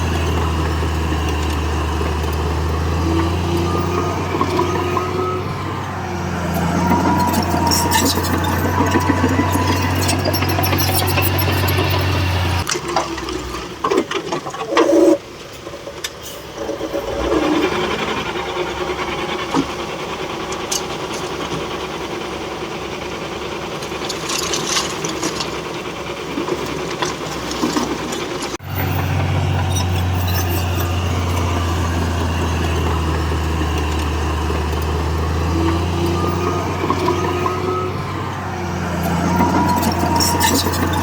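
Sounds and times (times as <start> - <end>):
diesel engine drone: 0.0 - 13.9, 14.7 - 41.0
metal rattling and clanking: 6.4 - 12.7, 23.8 - 41.0.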